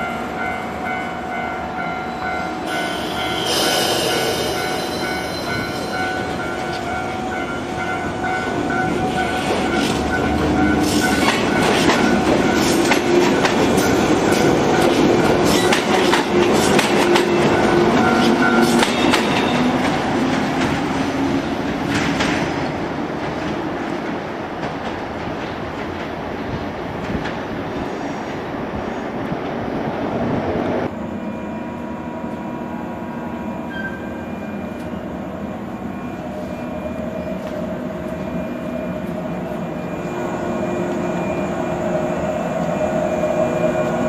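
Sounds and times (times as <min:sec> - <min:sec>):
steady tones: 0:00.5 - 0:12.9
electric train running: 0:01.7 - 0:21.2.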